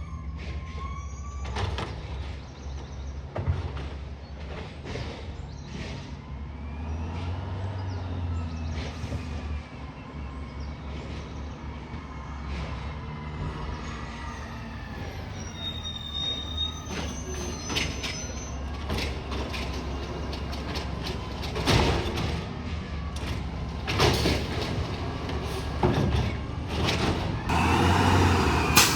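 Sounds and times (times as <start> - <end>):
hydraulic whining and squealing: 0.0 - 1.9, 12.6 - 22.4, 23.2 - 28.9
garbage truck engine running: 18.2 - 28.9
metallic clanks: 27.5 - 28.9.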